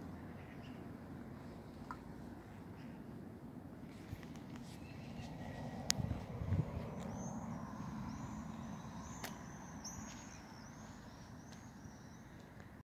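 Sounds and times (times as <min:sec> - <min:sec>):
low outdoor rumble: 0:00.0 - 0:12.8
small bird chirping: 0:06.7 - 0:12.4.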